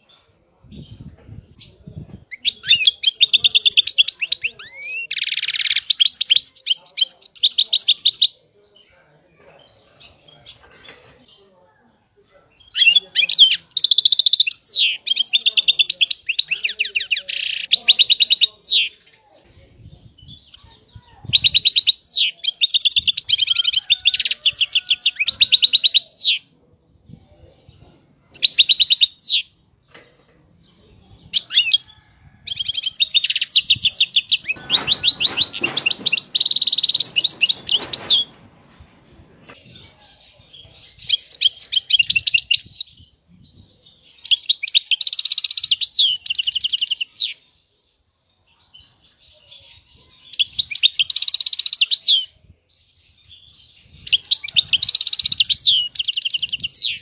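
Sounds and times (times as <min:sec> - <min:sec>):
low rustling noise: 0:33.5 - 0:41.0.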